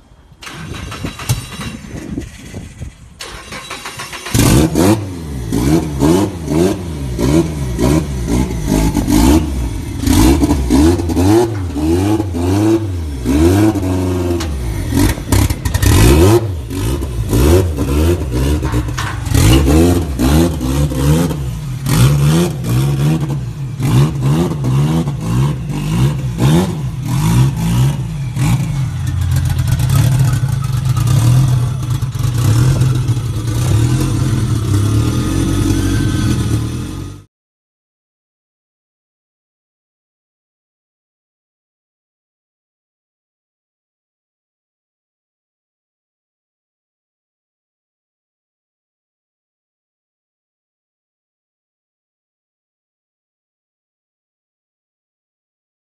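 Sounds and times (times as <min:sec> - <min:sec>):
car engine revving: 0:03.3 - 0:37.2.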